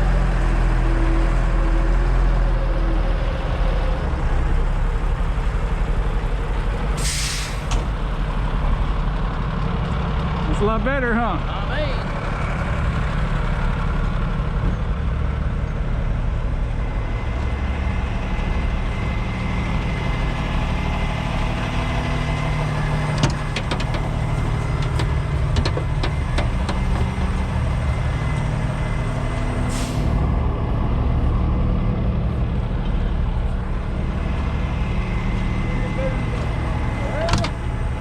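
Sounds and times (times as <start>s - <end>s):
diesel truck engine idling: 0.0s - 38.0s
air hiss burst: 7.0s - 7.7s.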